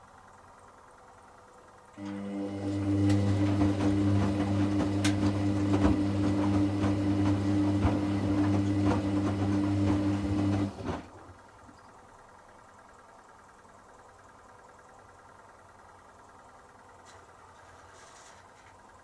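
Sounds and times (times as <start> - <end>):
drain pump humming: 1.9 - 14.2.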